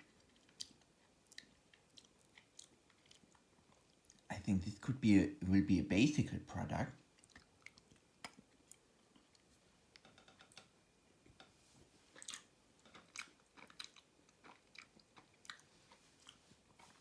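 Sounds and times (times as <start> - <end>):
faint chewing mouth sounds: 0.0 - 4.3, 7.1 - 11.5, 12.1 - 17.0.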